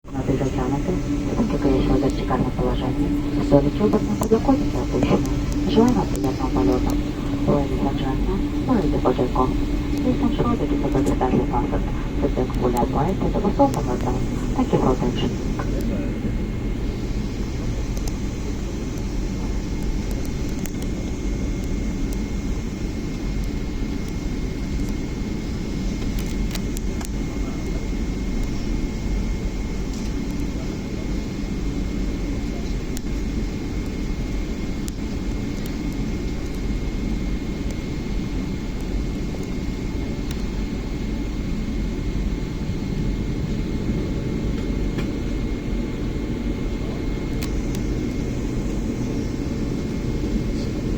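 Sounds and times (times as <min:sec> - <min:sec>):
jet engine cabin rumble: 0:00.0 - 0:50.9
thin high whine: 0:00.1 - 0:17.8
faint clicks: 0:17.9 - 0:18.2.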